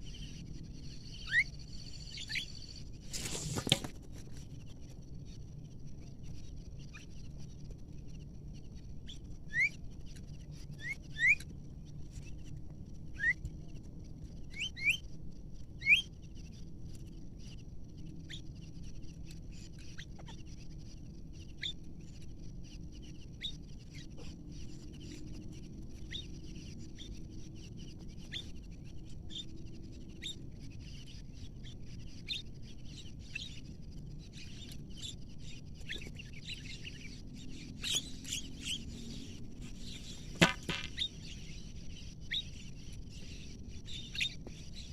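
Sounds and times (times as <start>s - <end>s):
birds chirping: 34.3s - 44.9s.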